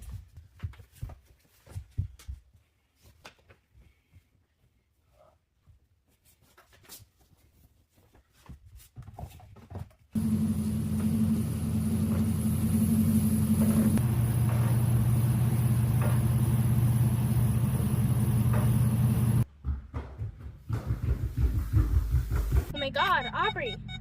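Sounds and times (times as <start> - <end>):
truck engine rumbling: 10.2 - 19.5.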